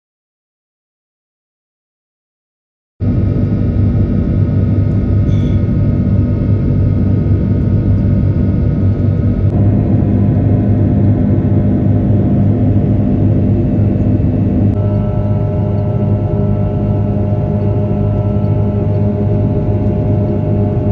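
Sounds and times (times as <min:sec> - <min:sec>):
airliner cabin hum: 0:03.0 - 0:20.9
steady tones: 0:09.5 - 0:20.9.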